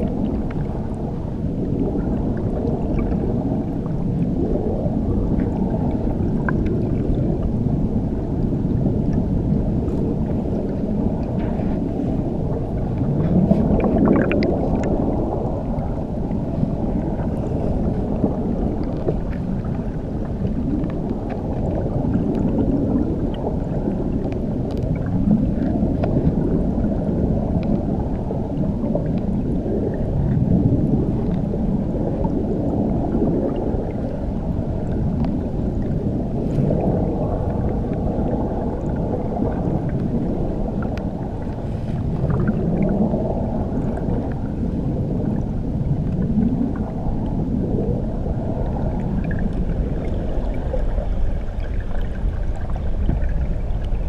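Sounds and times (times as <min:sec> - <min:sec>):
muffled underwater waterfall rush: 0:00.0 - 0:54.0.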